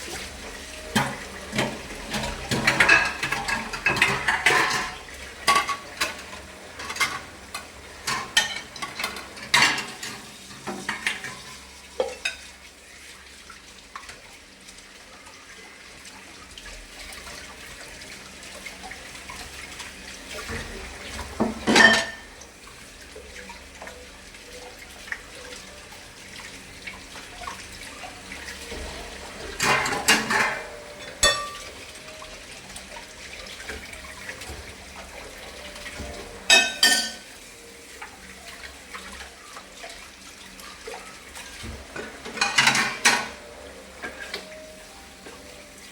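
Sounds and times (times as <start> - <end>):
water running: 0.0 - 45.9
dishes and cutlery clattering: 0.8 - 12.5, 20.4 - 22.4, 28.6 - 32.2, 35.5 - 37.4, 41.0 - 44.6.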